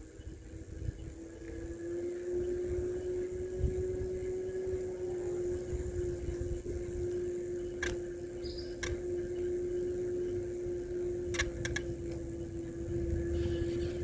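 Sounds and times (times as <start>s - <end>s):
electric bike motor whine: 0.0s - 14.0s
bike clicks: 6.6s - 12.5s.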